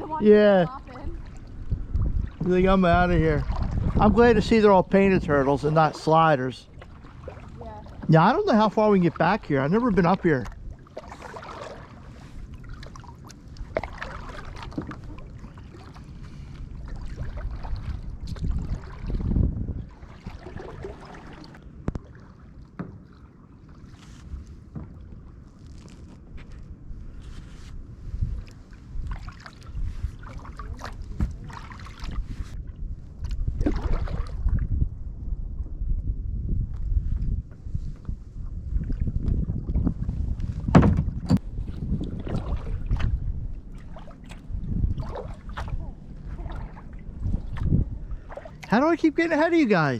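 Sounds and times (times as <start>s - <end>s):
wind on microphone: 0.0s - 10.8s, 11.4s - 22.1s, 26.2s - 48.7s
small water splashes: 0.0s - 26.7s, 28.4s - 32.6s, 33.2s - 34.7s, 41.4s - 49.9s
paddle dipping and dripping water: 0.1s - 27.6s, 28.2s - 35.8s, 36.7s - 49.9s
low rumble: 32.2s - 48.4s.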